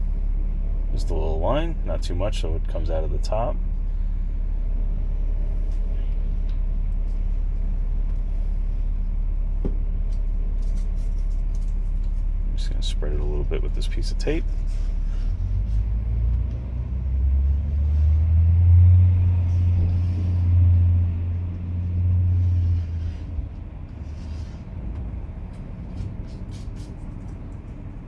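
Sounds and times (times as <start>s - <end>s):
loud low rumble: 12.4s - 26.7s.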